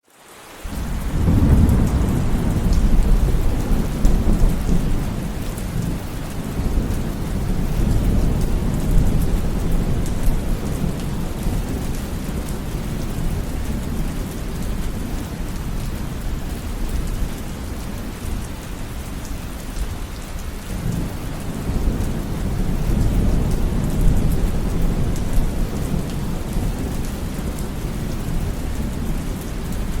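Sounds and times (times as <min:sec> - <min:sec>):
steady rain: 0:00.0 - 0:30.0
thunder rumbling: 0:00.7 - 0:15.7.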